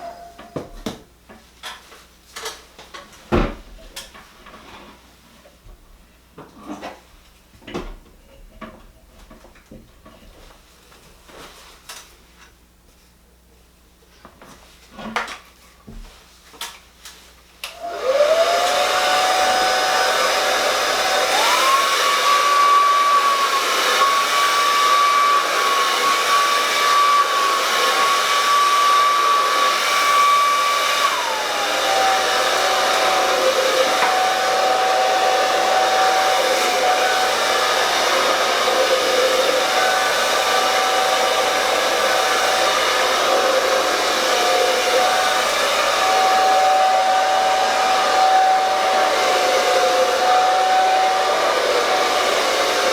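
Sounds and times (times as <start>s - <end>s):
hair dryer blowing: 17.6s - 52.9s.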